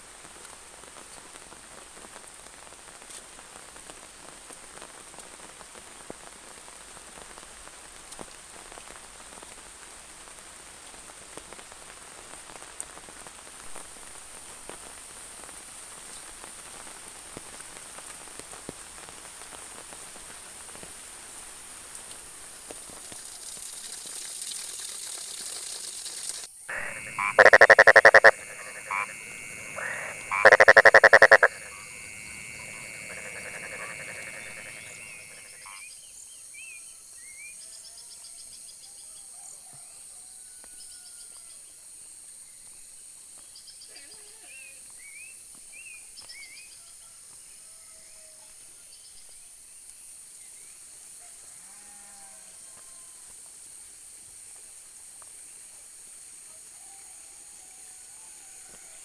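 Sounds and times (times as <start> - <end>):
steady rain: 0.0 - 35.7
high insect drone: 23.2 - 35.8
faint chirps: 26.7 - 35.8
frog rattling croak: 26.7 - 35.8.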